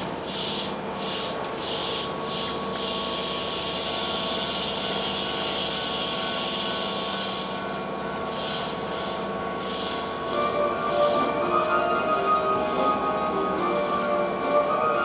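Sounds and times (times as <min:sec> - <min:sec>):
train equipment hum: 0:00.0 - 0:15.0
high pulsing hiss: 0:08.3 - 0:15.0.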